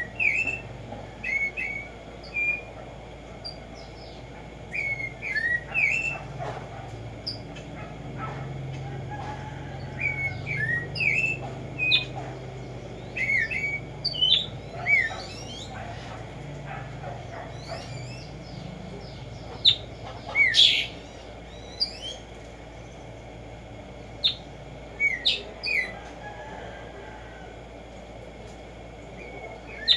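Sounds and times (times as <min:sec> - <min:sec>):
sparrow chirping and whistling: 0:00.0 - 0:02.8, 0:03.5 - 0:08.4, 0:09.8 - 0:22.3, 0:24.2 - 0:26.0, 0:29.2 - 0:29.9
steady low hum: 0:00.0 - 0:29.9.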